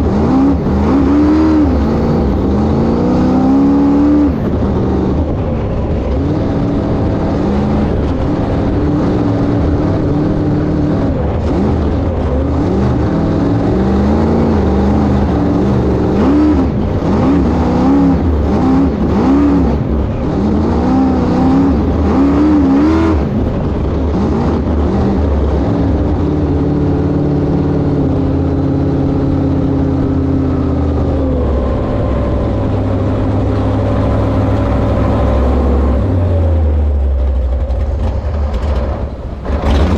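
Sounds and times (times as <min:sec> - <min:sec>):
boat inboard engine running: 0:24.7 - 0:39.9.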